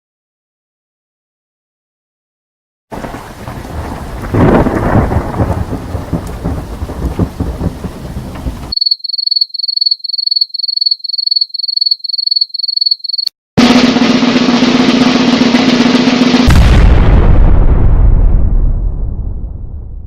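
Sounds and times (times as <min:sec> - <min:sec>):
heavy rain: 0:02.9 - 0:08.8
rolling thunder: 0:02.9 - 0:08.8, 0:16.4 - 0:20.0.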